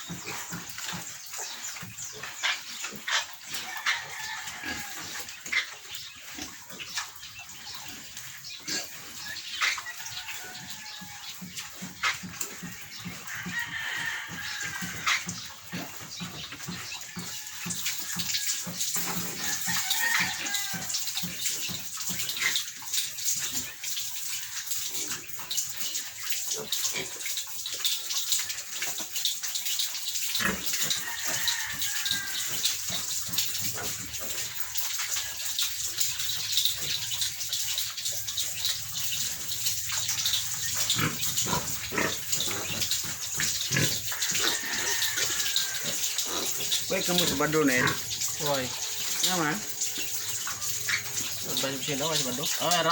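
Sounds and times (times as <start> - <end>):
piglets squealing: 36.2 - 52.9.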